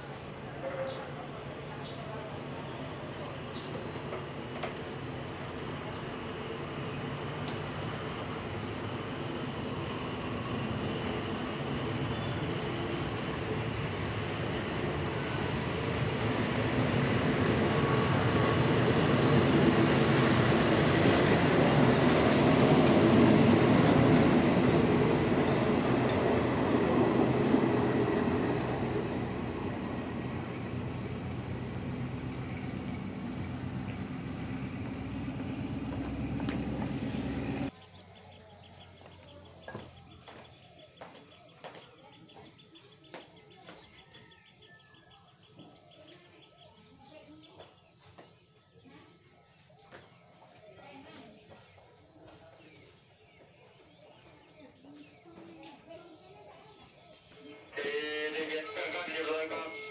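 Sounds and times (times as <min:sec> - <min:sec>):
train wheels running on rails: 0:00.0 - 0:37.7
faint platform ambience: 0:00.0 - 0:59.9.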